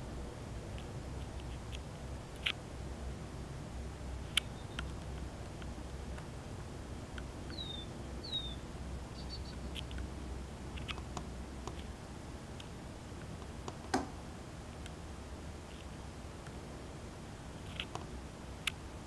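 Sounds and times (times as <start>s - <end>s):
low steady hum: 0.0s - 19.0s
faint clicks: 4.3s - 6.3s
bird chirps: 4.4s - 4.9s, 7.5s - 9.9s.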